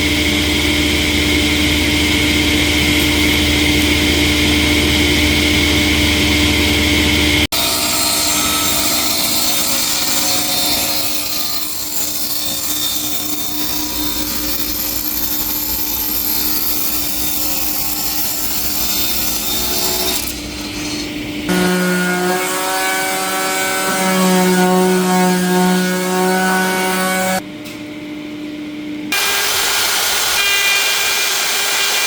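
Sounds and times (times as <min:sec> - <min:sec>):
saw cutting through wood: 0:07.5 - 0:27.4, 0:29.1 - 0:32.0.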